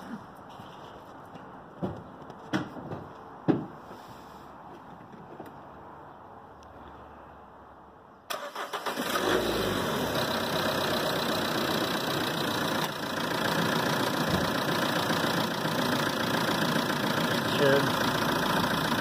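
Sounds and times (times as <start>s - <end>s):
car starter cranking: 8.3s - 10.0s
car engine idling: 8.4s - 19.0s.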